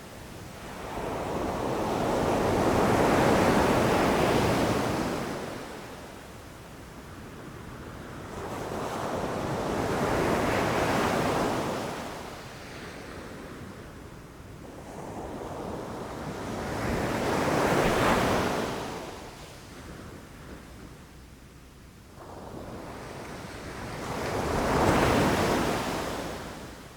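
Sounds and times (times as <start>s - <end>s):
ocean waves breaking on beach: 15.8s - 19.4s.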